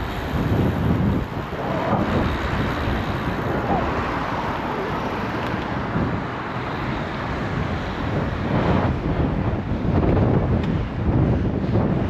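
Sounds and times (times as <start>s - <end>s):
street traffic: 0.0s - 12.0s
wind buffeting microphone: 0.0s - 12.0s.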